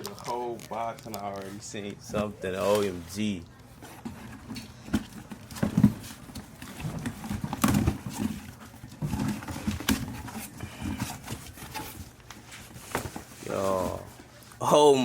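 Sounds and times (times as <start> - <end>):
packaging rustling: 0.0 - 14.6
knocks and thumps on a box: 3.9 - 12.0.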